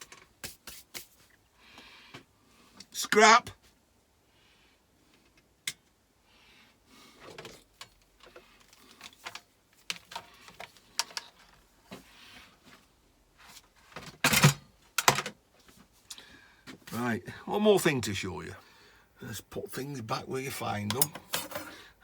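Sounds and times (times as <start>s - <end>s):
tools and metal parts clattering: 14.0s - 15.4s, 20.9s - 21.8s.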